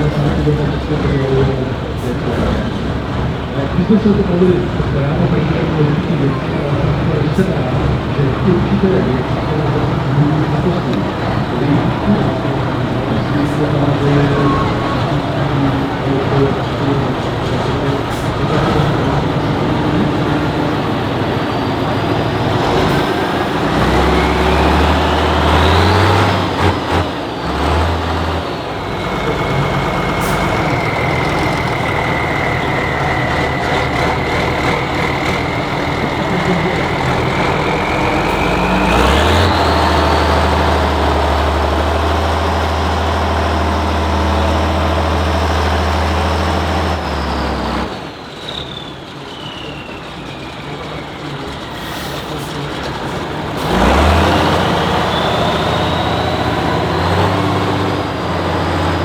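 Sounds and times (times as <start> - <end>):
off-road truck engine revving: 0.0 - 59.0.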